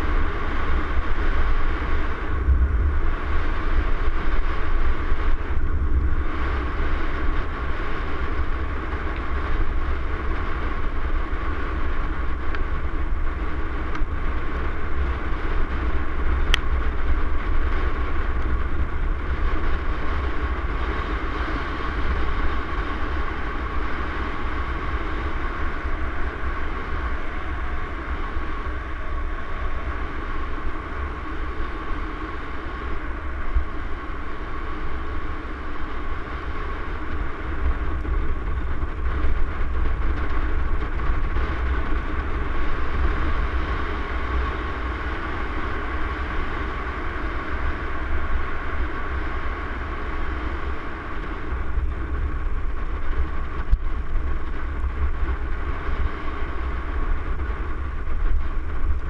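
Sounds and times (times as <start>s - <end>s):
low continuous rumble: 0.0s - 59.0s
tyre noise on trail: 0.0s - 59.0s.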